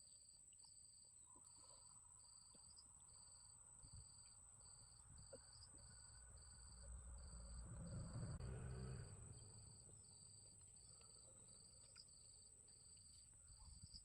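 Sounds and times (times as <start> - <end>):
insects chirping: 0.0 - 14.0
low rumble: 5.0 - 10.5.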